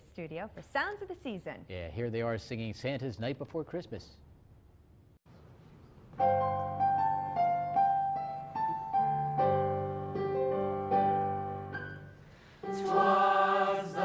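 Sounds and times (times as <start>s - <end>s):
piano playing chords and melody: 6.2s - 14.0s.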